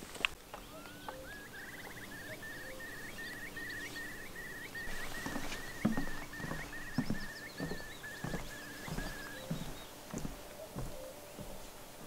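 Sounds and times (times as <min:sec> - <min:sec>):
bird singing: 0:00.4 - 0:11.8
footsteps: 0:03.3 - 0:12.0.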